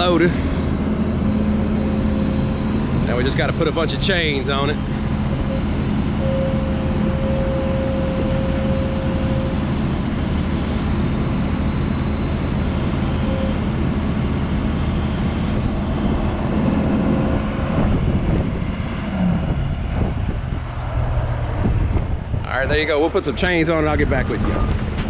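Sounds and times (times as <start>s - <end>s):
thin steady whine: 0.0s - 24.8s
large engine idling: 0.0s - 25.0s
wind noise on microphone: 15.1s - 23.4s.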